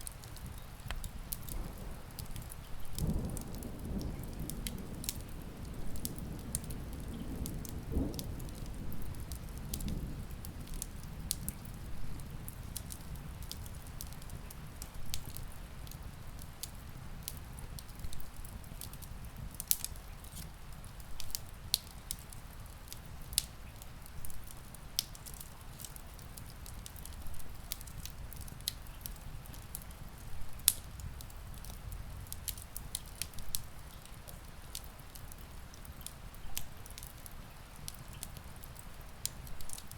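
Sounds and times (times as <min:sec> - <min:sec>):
rain hissing: 0:00.0 - 0:39.9
wood fire crackling: 0:00.0 - 0:39.9
distant thunder rumbling: 0:01.4 - 0:12.7.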